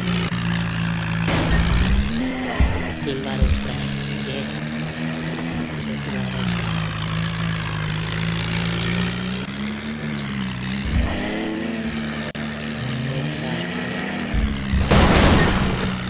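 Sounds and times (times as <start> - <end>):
tractor engine running: 0.0 - 16.0
loud crash-like noise: 14.8 - 16.0.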